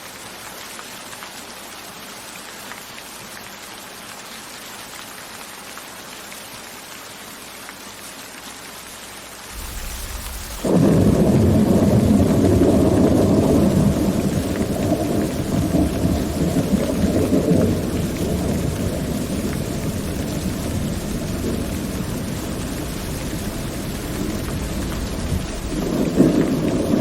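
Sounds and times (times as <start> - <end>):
steady rain: 0.0 - 27.0
low thunder rumble: 9.5 - 27.0.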